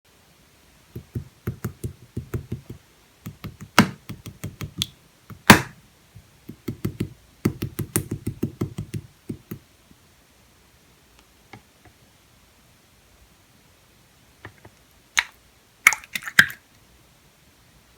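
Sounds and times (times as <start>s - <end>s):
sharp slime pops: 1.0s - 5.8s
squishy slime taps: 1.0s - 9.6s.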